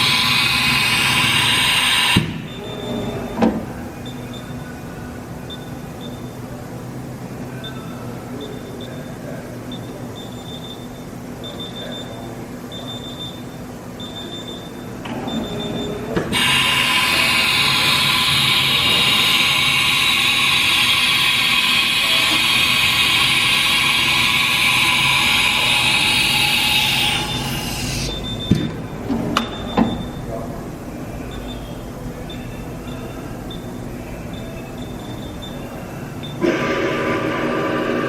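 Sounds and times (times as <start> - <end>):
milling machine running: 0.0 - 4.0, 16.3 - 29.2, 30.8 - 38.0
short high beeps: 25.0 - 28.6.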